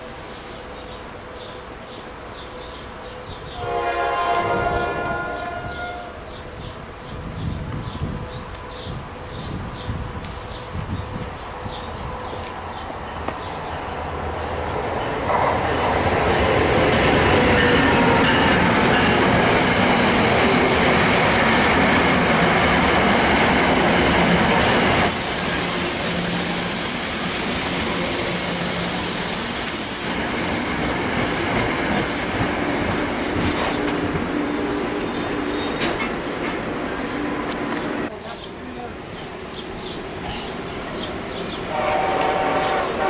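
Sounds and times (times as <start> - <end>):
train wheels rumbling on rail: 0.0 - 43.0
bright hiss: 25.1 - 30.9.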